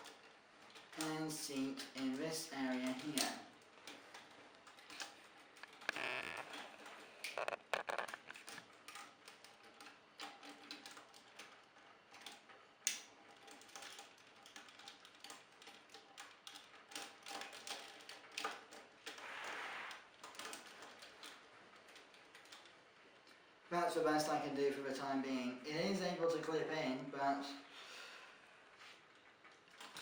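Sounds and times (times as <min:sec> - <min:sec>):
plastic toy parts clicking: 0:02.8 - 0:19.2.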